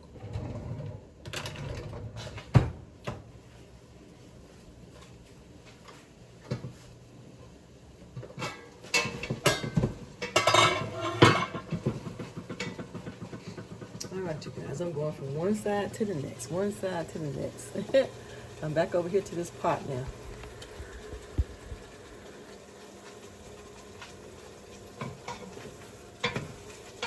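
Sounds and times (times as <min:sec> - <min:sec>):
dishes and pans clattering: 0:08.2 - 0:14.1, 0:24.8 - 0:27.0.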